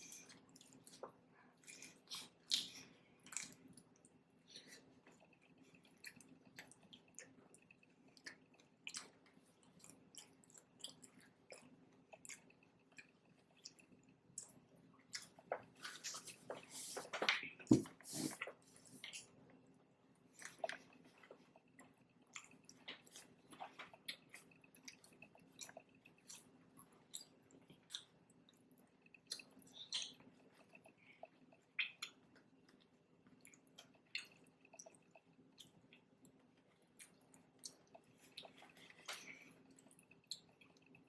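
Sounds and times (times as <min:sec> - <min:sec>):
faint steady hum: 0:00.0 - 0:41.0
wet chewing mouth clicks: 0:20.4 - 0:32.2.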